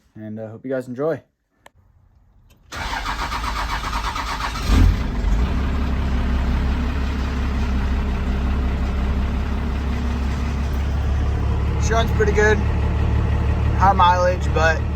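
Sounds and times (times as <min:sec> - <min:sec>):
diesel engine starting and idling: 0:02.5 - 0:14.9
starter motor cranking: 0:02.7 - 0:05.0.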